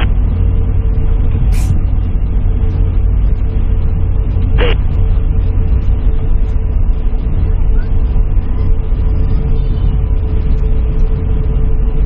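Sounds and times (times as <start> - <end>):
airliner cabin rumble: 0.0 - 12.0
thin steady hum: 0.0 - 12.0.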